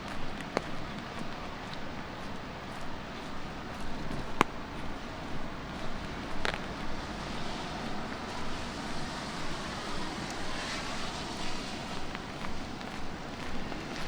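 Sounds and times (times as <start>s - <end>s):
footsteps on wet pavement: 0.0s - 14.0s
light rain hiss: 0.0s - 14.0s
tyres swishing on wet street: 0.0s - 14.0s.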